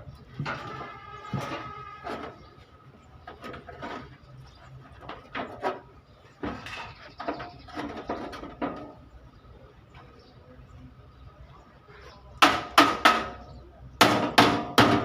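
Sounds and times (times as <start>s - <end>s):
hammer blows on sheet metal: 12.4s - 15.0s.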